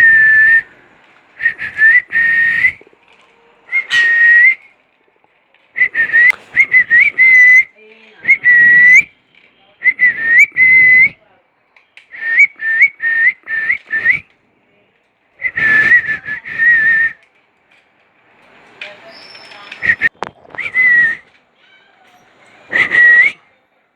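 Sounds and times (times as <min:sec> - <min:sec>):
whistling: 0:00.0 - 0:04.9, 0:05.6 - 0:11.2, 0:11.8 - 0:14.4, 0:15.4 - 0:17.3, 0:18.8 - 0:23.6.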